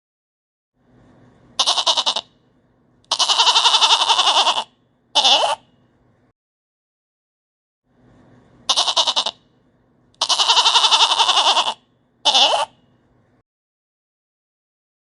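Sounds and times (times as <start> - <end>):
goat bleating: 1.6 - 2.3, 3.1 - 5.6, 8.7 - 9.4, 10.2 - 12.8.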